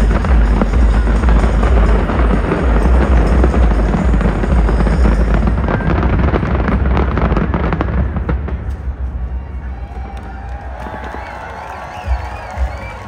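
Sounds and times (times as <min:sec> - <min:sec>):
heavy low rumble: 0:00.0 - 0:10.1
fireworks crackling: 0:00.0 - 0:13.0.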